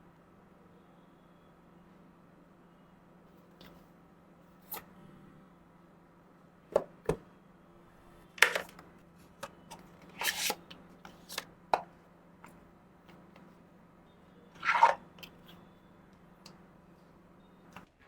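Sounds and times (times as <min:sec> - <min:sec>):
packaging scraping: 0:10.1 - 0:10.6.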